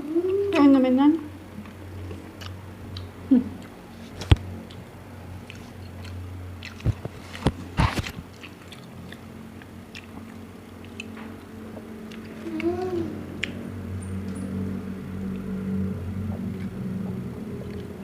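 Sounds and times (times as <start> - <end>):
person chewing food: 1.6 - 14.4, 15.2 - 18.0
low hum: 8.9 - 18.0
mouth clicks and smacks: 13.4 - 13.6.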